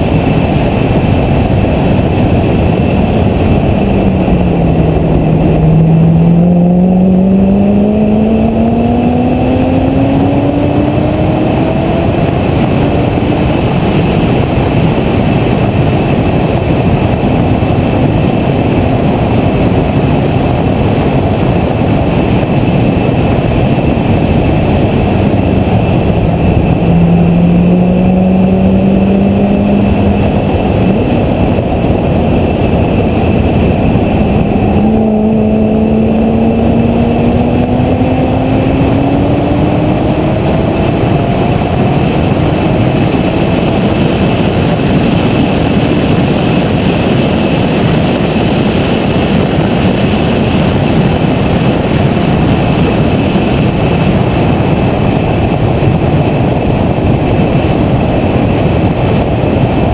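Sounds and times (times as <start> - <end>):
wind and road noise: 0.0 - 59.9
car engine revving hard: 0.1 - 54.8.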